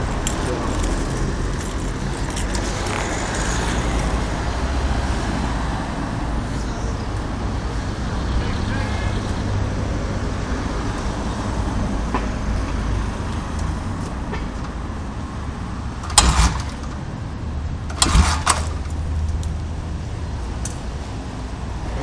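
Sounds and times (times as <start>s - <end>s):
motorcycle engine rumbling: 0.0s - 5.2s, 12.4s - 21.0s.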